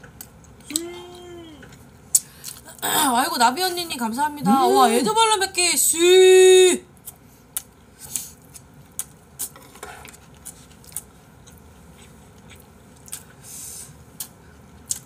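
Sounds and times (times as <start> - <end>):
wet chewing smacks: 10.2 - 13.4.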